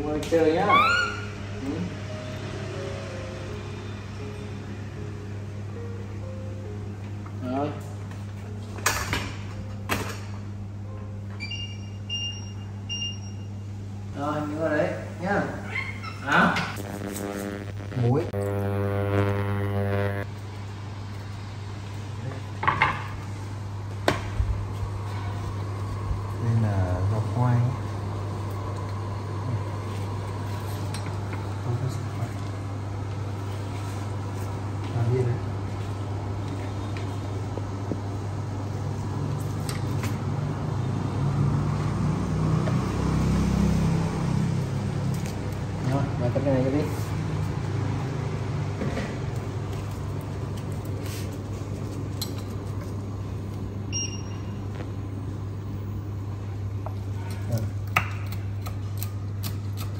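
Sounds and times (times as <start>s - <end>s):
steady low hum: 9.5s - 41.7s.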